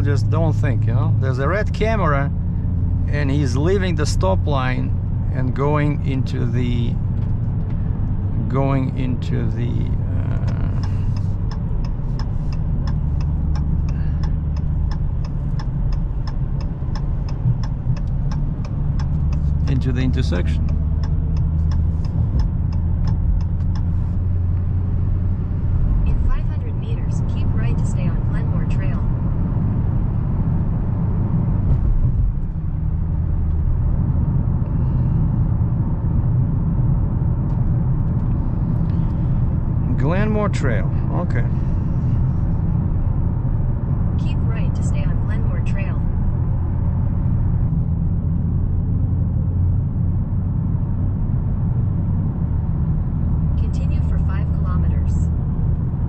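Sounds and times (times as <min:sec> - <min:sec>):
car engine droning: 0:00.0 - 0:56.0
turn signal clicking: 0:10.4 - 0:28.8.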